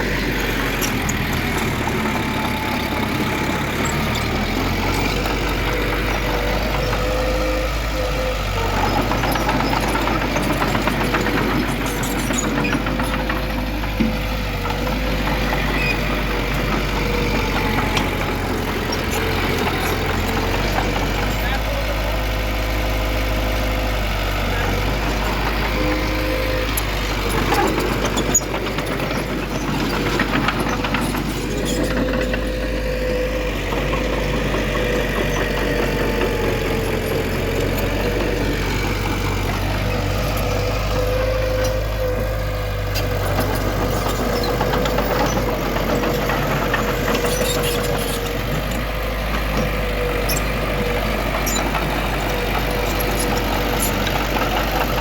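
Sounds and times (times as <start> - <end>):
heavy machinery diesel engine: 0.0 - 55.0.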